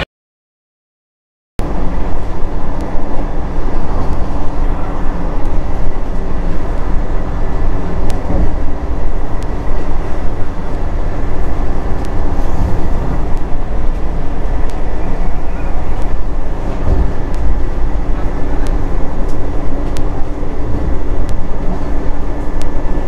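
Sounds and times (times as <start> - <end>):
train wheels rumbling on rail: 1.6 - 23.0.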